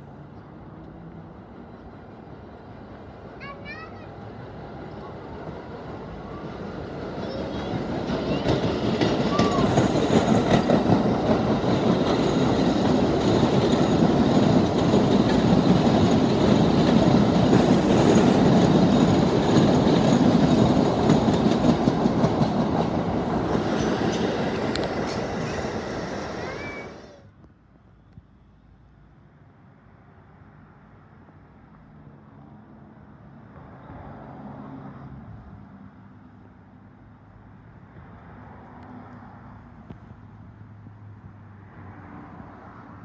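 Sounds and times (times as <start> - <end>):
subway train passing: 0.0 - 27.3
wheels clicking over rail joints: 8.0 - 27.2.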